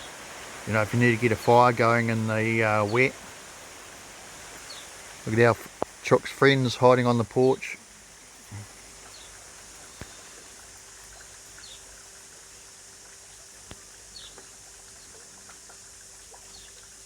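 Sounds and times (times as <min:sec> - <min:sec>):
fire crackling: 0:00.0 - 0:11.6
heavy rain hissing: 0:00.0 - 0:17.0.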